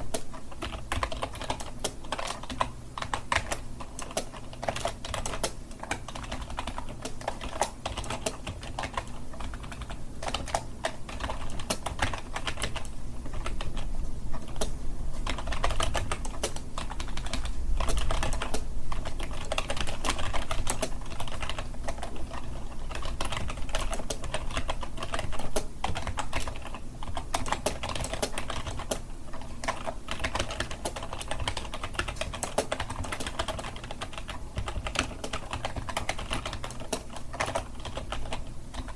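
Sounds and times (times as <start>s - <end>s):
typing on computer keyboard: 0.0s - 38.9s.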